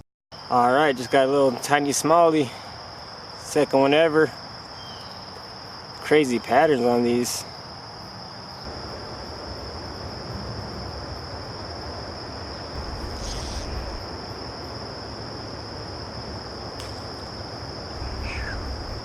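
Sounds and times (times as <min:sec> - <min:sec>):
insects droning: 0:00.4 - 0:19.0
creek water flowing: 0:12.4 - 0:19.0.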